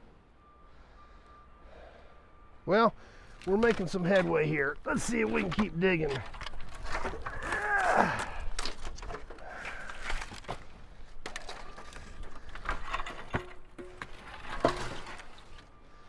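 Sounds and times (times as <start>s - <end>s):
scrap metal knocks and rattles: 10.1s - 15.6s.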